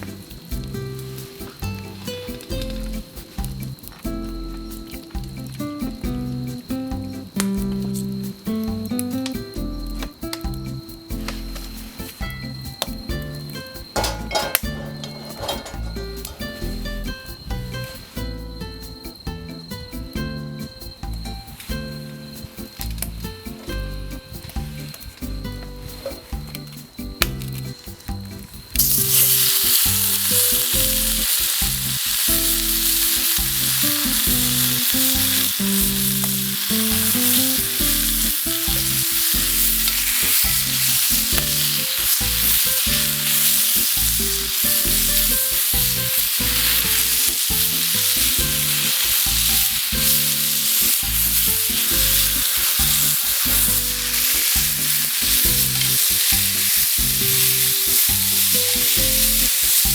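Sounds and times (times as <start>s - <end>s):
meat sizzling in a frying pan: 28.7s - 59.9s.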